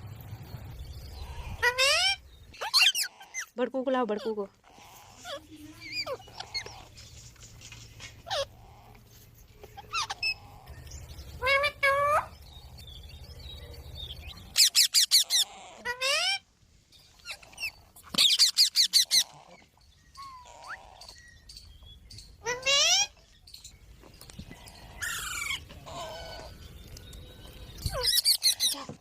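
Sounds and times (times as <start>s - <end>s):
low hum: 0.0s - 2.6s
parrot squawking and screeching: 1.2s - 3.6s, 4.2s - 7.0s, 8.2s - 9.0s, 9.8s - 10.7s, 11.4s - 12.4s, 14.4s - 16.4s, 17.1s - 21.2s, 22.4s - 23.2s, 24.6s - 26.6s, 27.8s - 29.0s.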